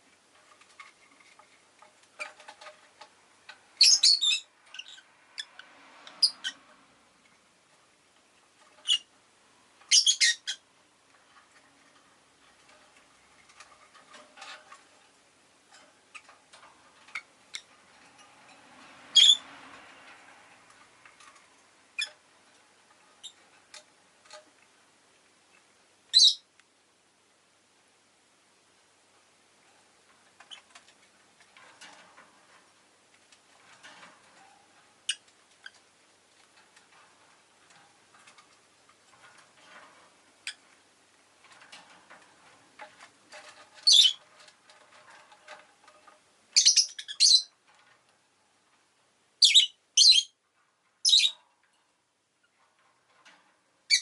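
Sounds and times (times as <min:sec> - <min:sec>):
lovebird chirping: 0:03.8 - 0:05.5, 0:09.9 - 0:10.6, 0:19.1 - 0:19.4, 0:26.1 - 0:26.4, 0:43.8 - 0:44.2, 0:46.6 - 0:47.5, 0:49.4 - 0:50.4, 0:51.0 - 0:51.4.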